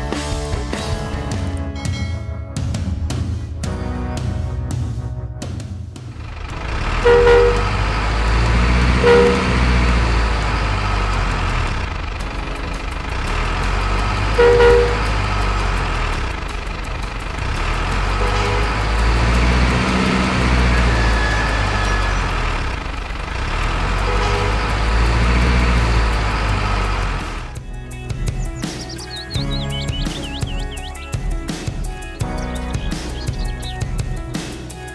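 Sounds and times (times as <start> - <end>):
truck engine rumbling: 3.8 - 34.9
truck horn toots: 6.6 - 11.8, 13.1 - 16.3, 17.4 - 27.2.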